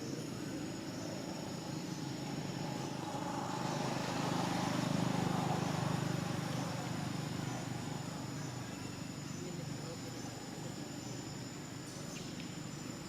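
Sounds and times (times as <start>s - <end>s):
vehicle engine passing by: 2.0s - 8.3s.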